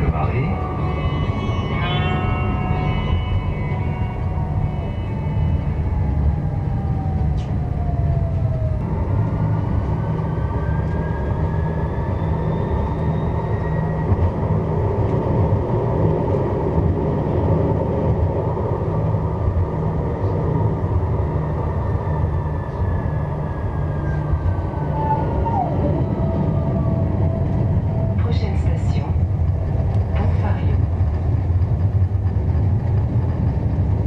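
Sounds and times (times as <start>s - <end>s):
wheels rumbling on rail: 0.0s - 34.0s.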